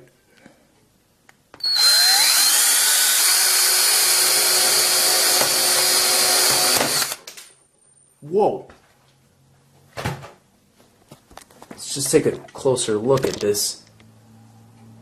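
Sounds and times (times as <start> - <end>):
power drill spinning: 1.6 - 7.2.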